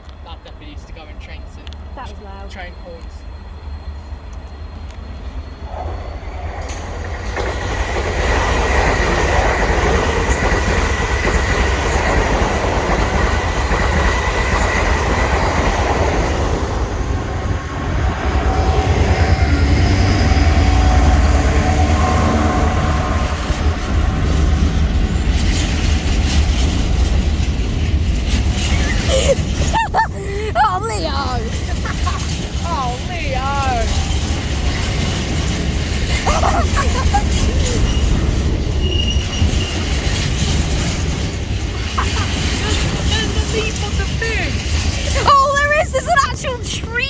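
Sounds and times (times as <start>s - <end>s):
train wheels on rails: 0.0s - 47.0s
high squeal: 37.1s - 40.1s.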